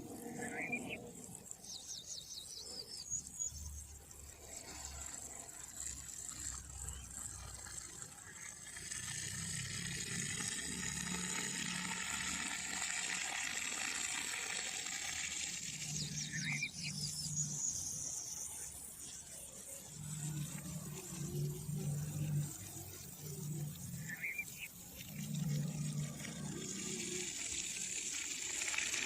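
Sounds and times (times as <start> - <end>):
bird high chirps: 0.2 - 3.3, 16.0 - 18.0
flowing water: 3.9 - 29.0.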